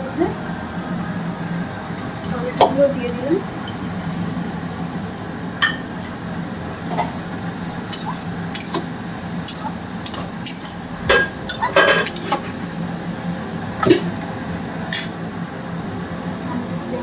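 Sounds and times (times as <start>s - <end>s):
metal spatula scraping a pan: 7.9s - 12.6s.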